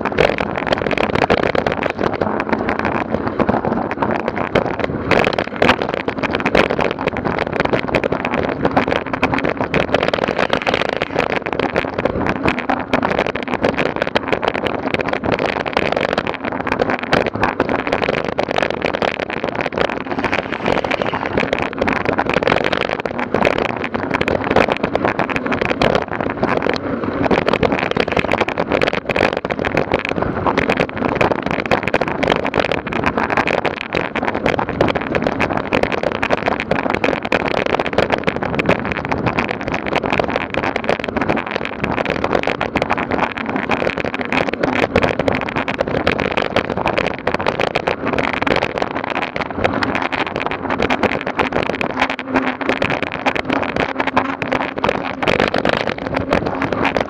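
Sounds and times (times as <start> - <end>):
vehicle engine hum: 0.0 - 57.0
dense rattle: 0.3 - 57.0.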